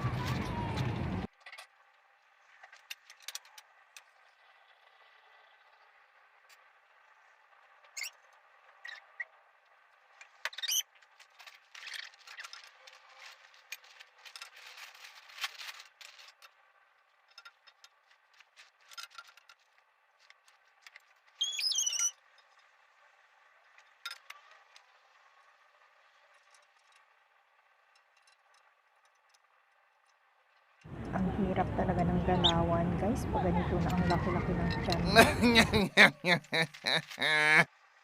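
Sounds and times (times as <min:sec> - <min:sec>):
brief high squeak: 0:21.4 - 0:22.2.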